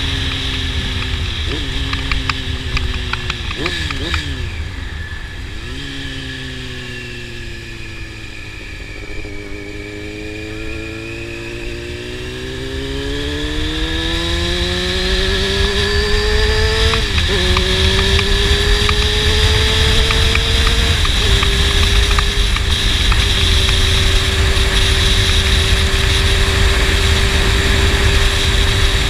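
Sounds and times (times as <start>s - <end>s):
motorcycle engine revving: 0.0s - 29.0s
quick gear shifts: 13.5s - 28.3s.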